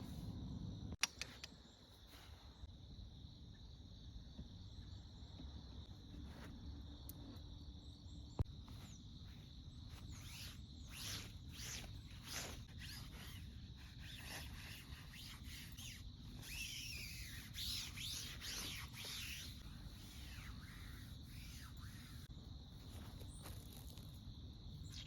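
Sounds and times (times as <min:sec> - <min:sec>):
insects chirping: 0:00.0 - 0:25.0
sharp click: 0:01.0 - 0:01.6
quick rubbing strokes: 0:09.9 - 0:22.3.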